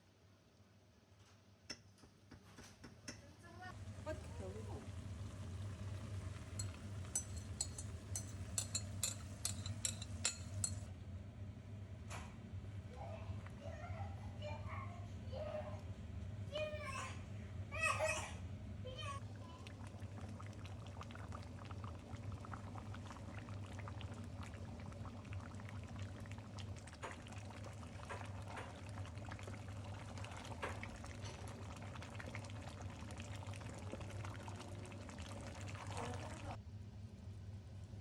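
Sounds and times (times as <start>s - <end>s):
hot liquid crackling and bubbling: 3.7s - 11.0s, 19.2s - 36.6s.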